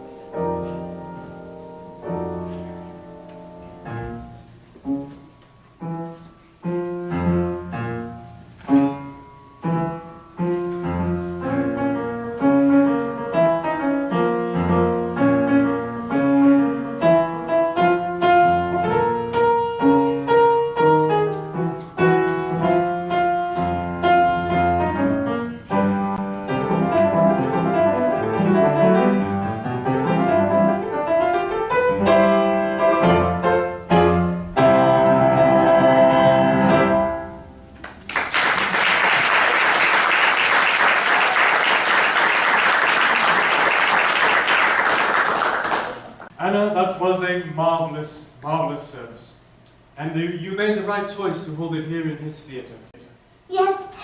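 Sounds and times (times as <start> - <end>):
piano music: 0.0 - 38.1.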